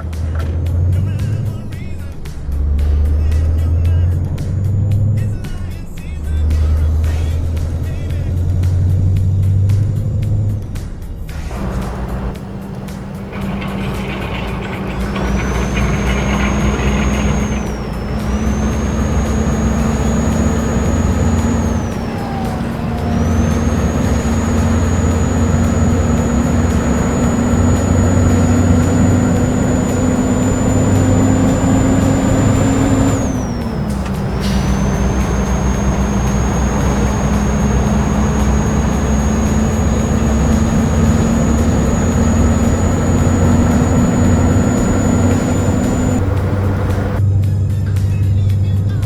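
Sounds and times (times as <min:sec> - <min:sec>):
truck engine hum: 0:11.4 - 0:47.2.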